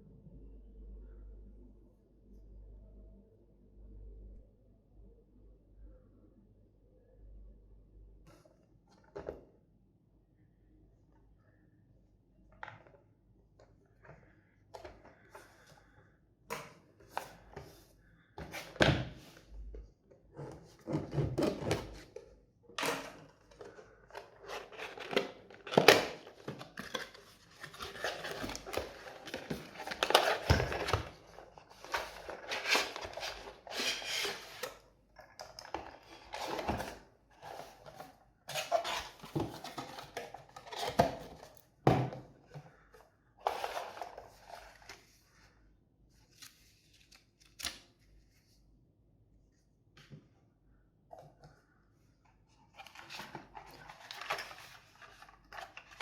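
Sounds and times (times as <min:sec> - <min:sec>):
cardboard box handled and opened: 0:22.8 - 0:42.2, 0:43.4 - 0:45.2, 0:52.5 - 0:56.0
plastic packaging rustling: 0:23.0 - 0:34.6.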